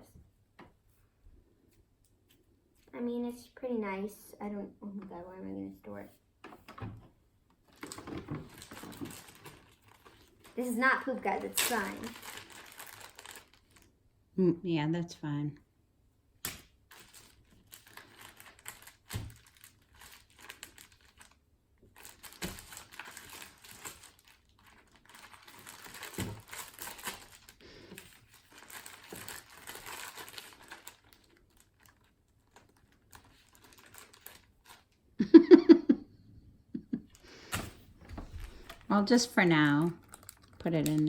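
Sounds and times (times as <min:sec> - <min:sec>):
plastic packaging crinkling: 0:07.6 - 0:14.0, 0:16.6 - 0:35.0, 0:37.2 - 0:41.0.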